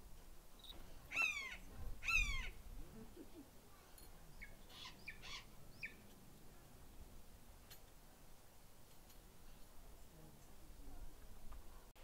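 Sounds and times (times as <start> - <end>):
bird crying: 0.6 - 2.6, 4.7 - 6.0.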